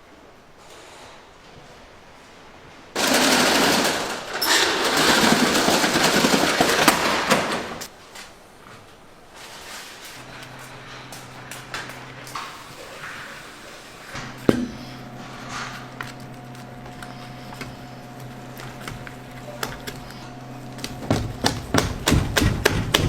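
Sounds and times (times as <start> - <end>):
faint steady hum: 7.9 - 23.0.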